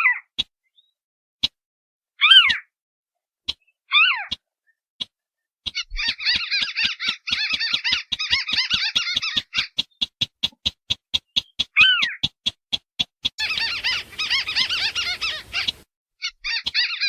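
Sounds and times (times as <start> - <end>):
sharp bird ticks: 0.3 - 1.6, 2.3 - 2.7, 3.4 - 15.9, 16.5 - 17.0
bird chattering run: 5.7 - 17.0
short falling bird call: 13.4 - 15.8.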